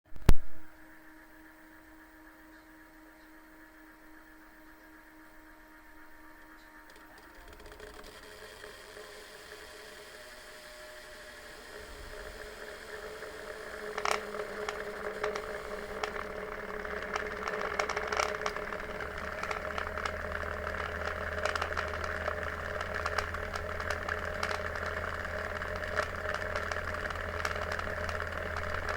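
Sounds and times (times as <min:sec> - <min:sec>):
fan humming and whirring: 0:00.1 - 0:28.9
ticking and scraping clicks: 0:06.4 - 0:28.9.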